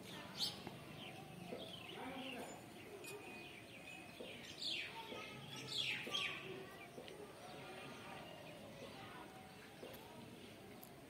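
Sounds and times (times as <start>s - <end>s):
birds calling: 0.0s - 8.7s.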